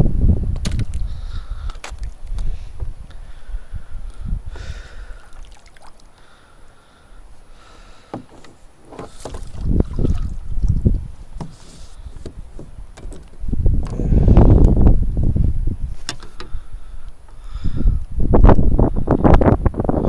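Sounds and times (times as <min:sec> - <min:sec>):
wind buffeting microphone: 0:00.0 - 0:05.5, 0:08.2 - 0:20.0
water slapping against kayak hull: 0:08.0 - 0:14.0.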